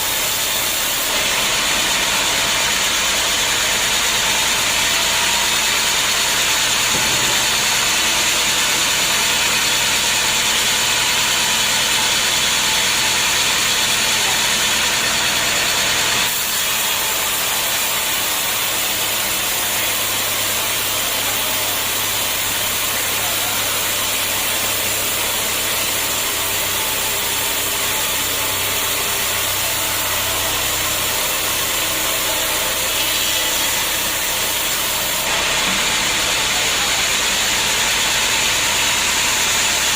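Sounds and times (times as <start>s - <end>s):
band sawmill running: 0.0s - 39.9s.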